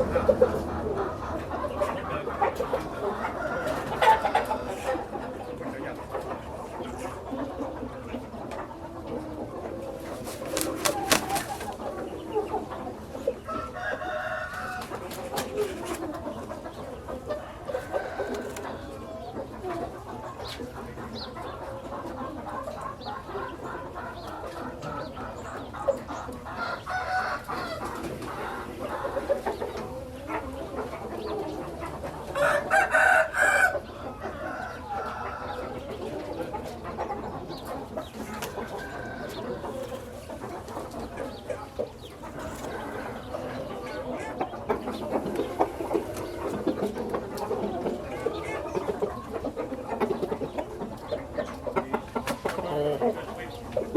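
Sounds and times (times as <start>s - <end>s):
chickens clucking: 0.0s - 53.9s
rooster crowing: 13.5s - 15.1s, 26.6s - 27.9s, 32.4s - 35.8s.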